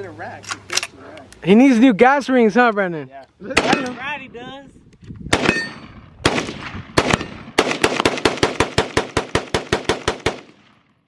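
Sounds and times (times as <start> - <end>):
gunshots: 3.5 - 4.1, 5.3 - 10.8
rapid gunfire: 5.3 - 10.7.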